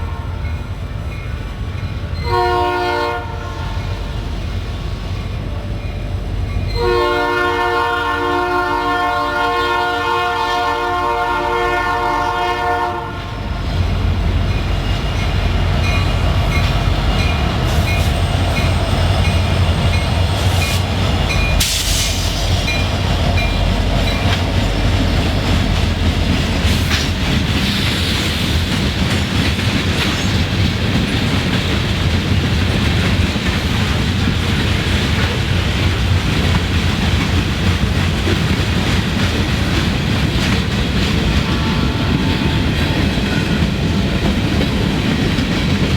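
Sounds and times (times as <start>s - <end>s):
locomotive horn: 0.0s - 0.5s, 2.2s - 4.0s, 6.8s - 13.5s, 41.3s - 43.6s
train wheels clacking on rails: 11.7s - 45.9s
locomotive engine rumble: 13.4s - 45.9s.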